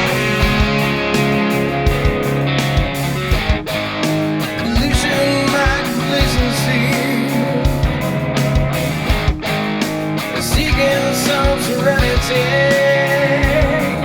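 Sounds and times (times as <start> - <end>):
bass guitar: 0.0 - 14.0
electric guitars: 0.0 - 14.0
steady drum beat: 0.0 - 14.0.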